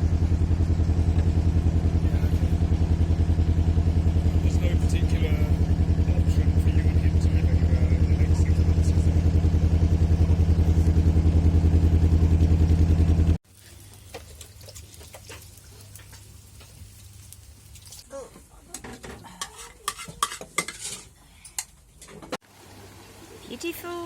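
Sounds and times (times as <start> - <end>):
boat engine running: 0.0 - 13.4.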